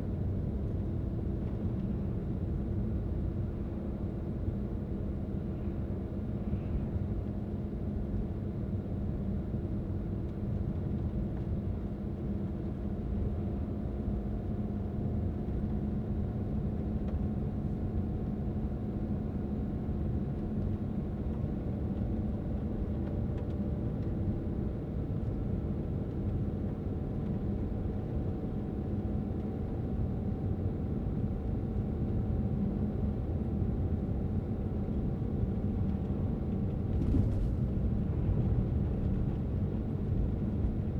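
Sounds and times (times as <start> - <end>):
car engine and tyres rumbling: 35.5 - 40.9.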